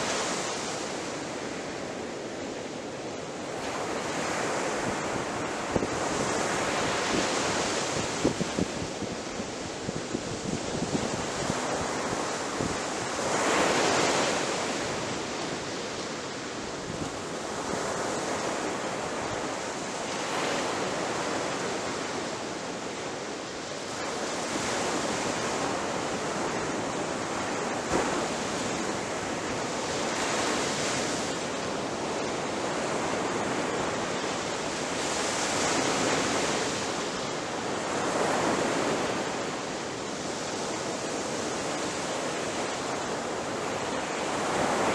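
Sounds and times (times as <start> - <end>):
ocean waves crashing on beach: 0.0 - 44.9.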